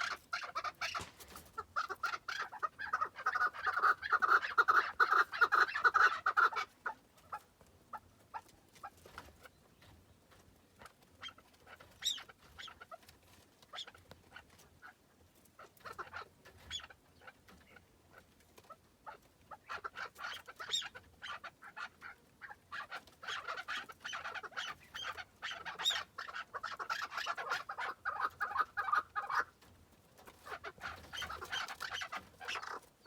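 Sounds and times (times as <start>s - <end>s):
partridge clucking calls: 0.0s - 33.0s.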